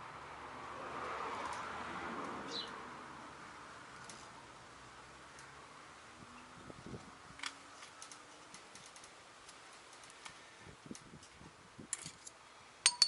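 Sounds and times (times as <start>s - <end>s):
hand tools tapping metal: 11.9s - 13.0s.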